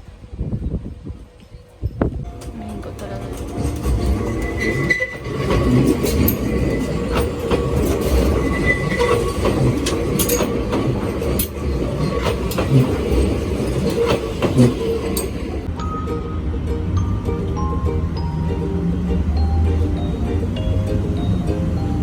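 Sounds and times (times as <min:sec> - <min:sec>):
train wheels rumbling on rails: 0:00.0 - 0:15.8
high wheel squeals: 0:02.3 - 0:15.7.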